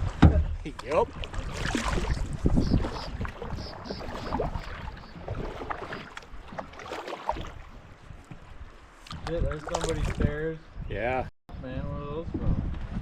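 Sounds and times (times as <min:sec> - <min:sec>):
wind rumble on microphone: 0:00.0 - 0:06.6, 0:07.4 - 0:13.0
paddle splashes and knocks: 0:00.0 - 0:10.4.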